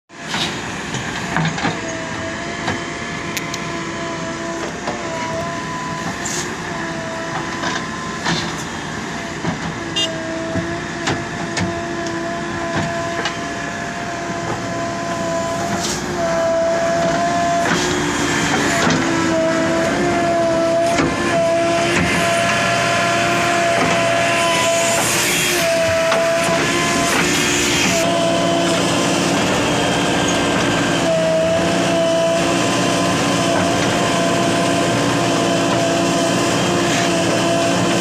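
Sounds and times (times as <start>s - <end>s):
backhoe diesel engine and hydraulics: 0.1s - 38.0s.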